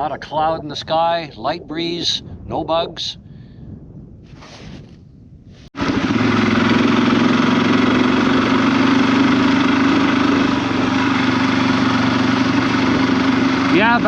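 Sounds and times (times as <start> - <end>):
small vehicle engine running: 5.8 - 14.0.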